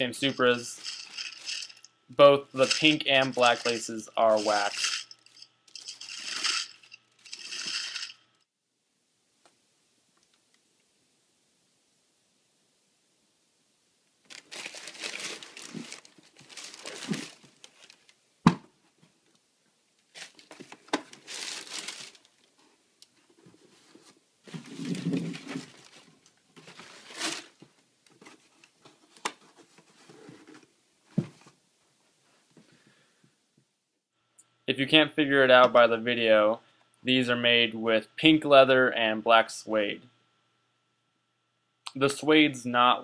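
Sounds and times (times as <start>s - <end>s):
packing paper crinkling: 0.0s - 1.9s, 2.6s - 8.1s, 14.2s - 18.1s, 20.1s - 22.6s, 24.5s - 27.6s.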